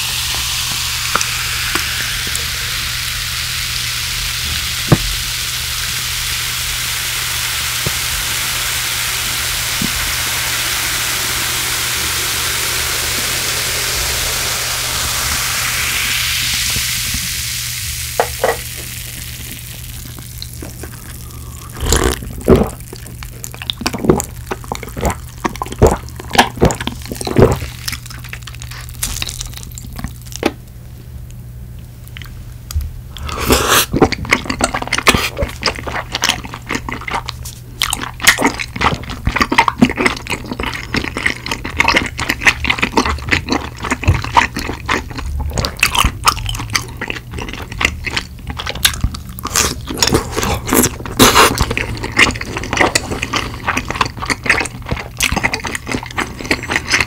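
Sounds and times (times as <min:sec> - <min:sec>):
person sipping a drink: 0:00.0 - 0:03.3, 0:18.2 - 0:30.5, 0:33.1 - 0:57.0
wet chewing: 0:18.5 - 0:30.6, 0:33.2 - 0:57.0.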